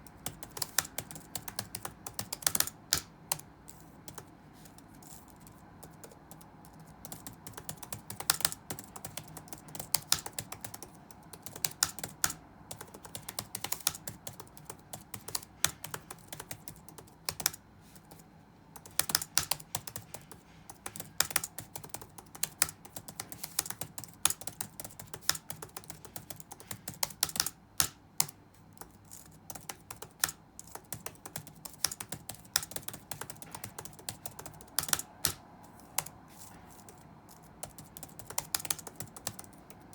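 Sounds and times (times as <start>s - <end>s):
faint background hum: 0.0s - 39.9s.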